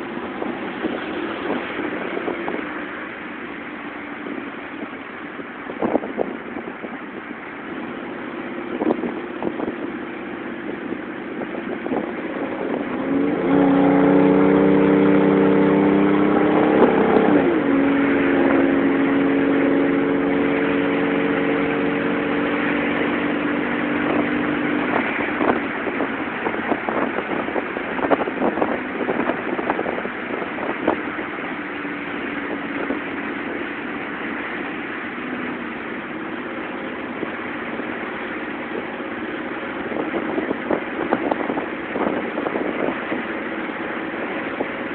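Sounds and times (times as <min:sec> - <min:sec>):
truck exhaust drone: 0:07.6 - 0:44.9
rough engine note: 0:07.8 - 0:27.2.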